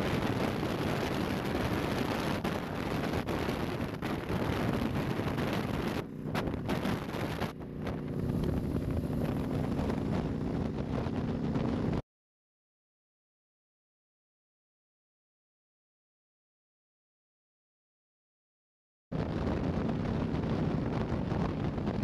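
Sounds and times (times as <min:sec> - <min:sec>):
motorcycle engine running: 0:00.0 - 0:12.0, 0:19.2 - 0:22.0
wind rushing over microphone: 0:00.0 - 0:12.0, 0:19.1 - 0:22.0.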